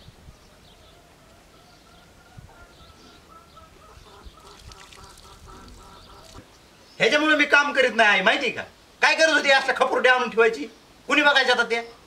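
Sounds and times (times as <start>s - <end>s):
faint bird calls: 0.3s - 7.0s.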